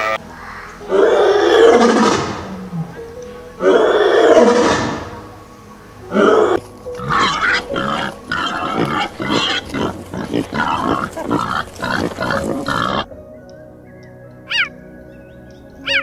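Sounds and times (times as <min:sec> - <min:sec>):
background music: 0:00.0 - 0:16.0
animal grunt-like calls: 0:00.9 - 0:05.2, 0:06.1 - 0:13.1.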